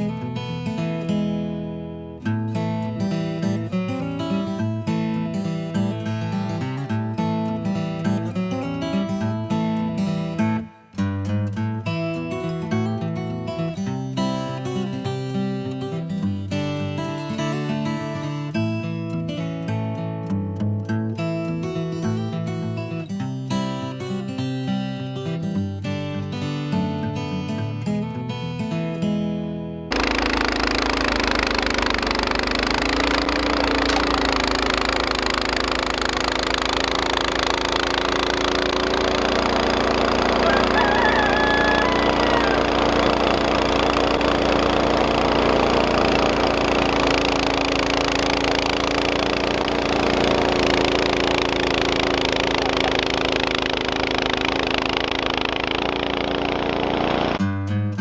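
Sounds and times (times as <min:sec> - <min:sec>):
engine humming steadily: 0:29.9 - 0:57.4.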